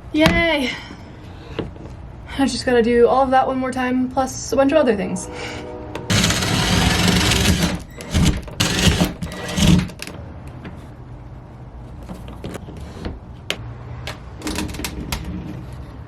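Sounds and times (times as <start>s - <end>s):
power drill driving screws: 6.1s - 9.9s.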